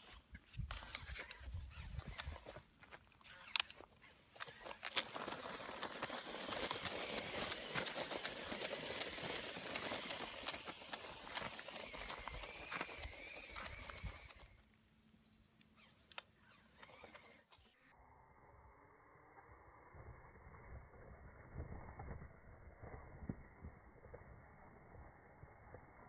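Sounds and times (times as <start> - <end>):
gravel crunching under tyres: 0.0 - 14.6
faint motor whine: 0.0 - 26.0.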